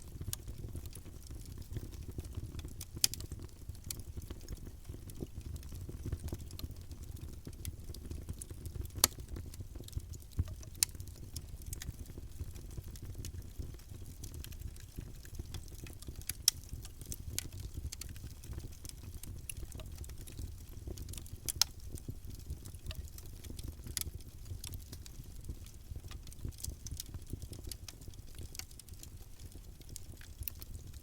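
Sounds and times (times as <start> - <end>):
burning wood crackling and popping: 0.0 - 31.0
low rumble of flames: 0.0 - 31.0.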